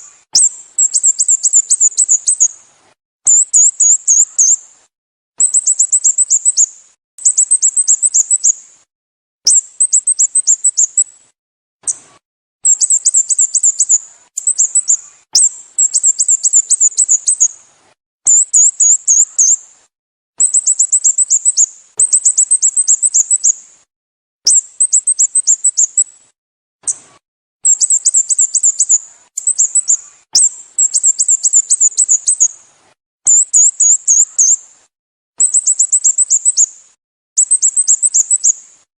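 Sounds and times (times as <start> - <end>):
bulbul chirping: 0.0 - 2.5, 5.4 - 8.6, 9.5 - 11.1, 12.6 - 17.6, 20.4 - 23.6, 24.5 - 26.0, 27.6 - 32.6, 33.3 - 34.6, 35.4 - 36.7, 37.4 - 38.6.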